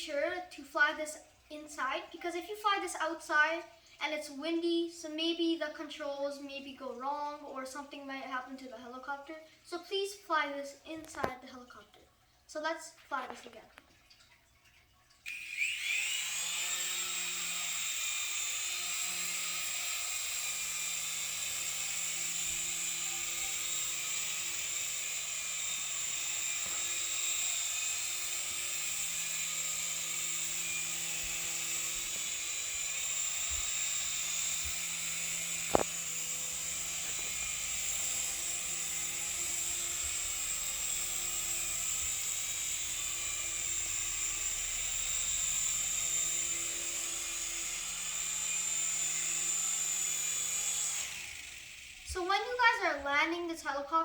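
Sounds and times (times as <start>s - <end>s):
toy helicopter motor whine: 15.2s - 53.2s
rotor blades beating: 15.6s - 52.8s
sharp click: 35.6s - 36.0s.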